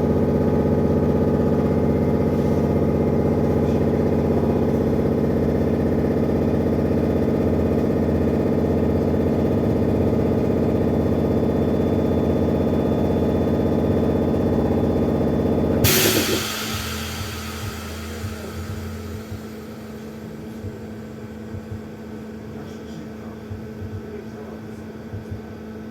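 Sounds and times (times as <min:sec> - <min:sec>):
air hissing: 0:15.8 - 0:20.2.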